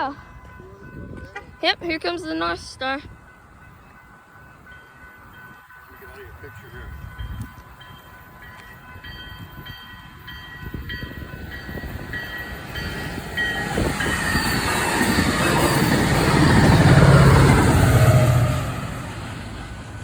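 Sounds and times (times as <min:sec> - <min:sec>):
railroad crossing bell ringing: 0:00.0 - 0:20.0
train wheel noise: 0:00.0 - 0:20.0
diesel locomotive rumble: 0:08.9 - 0:20.0.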